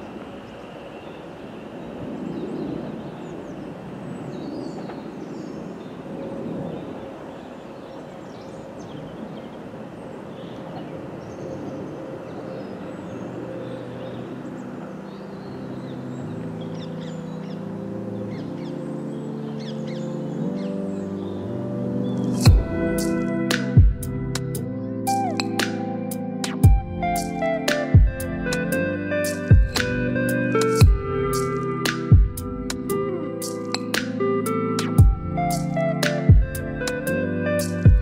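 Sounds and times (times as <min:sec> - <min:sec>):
birds calling: 0:00.0 - 0:38.0
music: 0:12.1 - 0:38.0.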